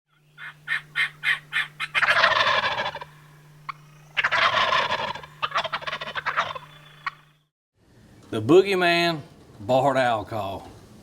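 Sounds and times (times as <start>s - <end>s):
low steady hum: 0.1s - 11.0s
owl call notes: 0.3s - 7.4s
wild turkeys gobbling: 0.3s - 7.4s.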